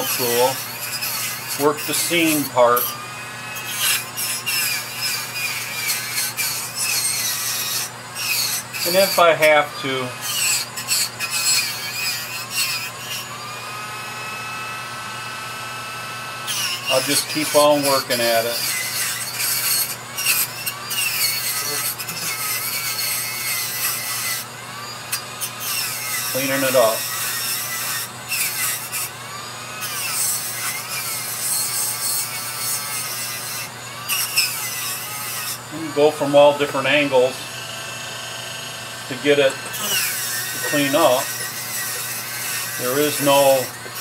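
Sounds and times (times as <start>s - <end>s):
rotary tool whine: 0.0s - 44.0s.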